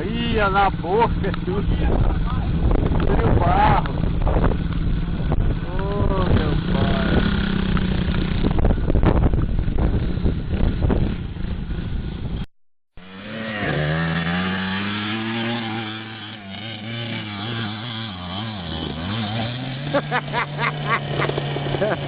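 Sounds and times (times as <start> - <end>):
motorcycle engine running roughly: 0.0 - 12.1
small motorcycle engine revving: 0.0 - 12.4, 13.0 - 22.0.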